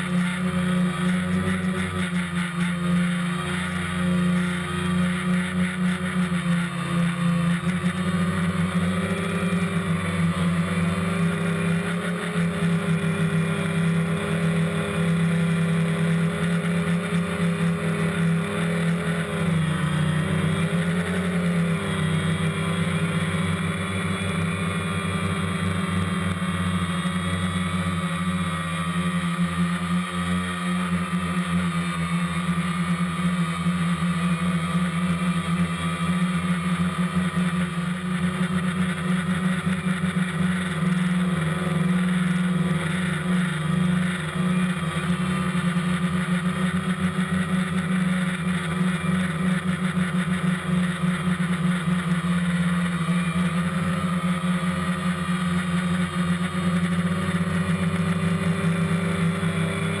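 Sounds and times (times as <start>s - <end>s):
drone propellers buzzing: 0.0s - 60.0s.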